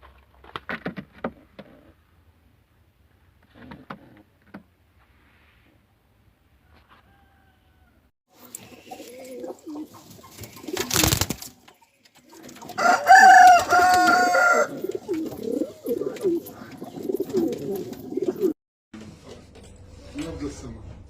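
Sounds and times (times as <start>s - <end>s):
pigeons cooing: 8.4s - 18.6s.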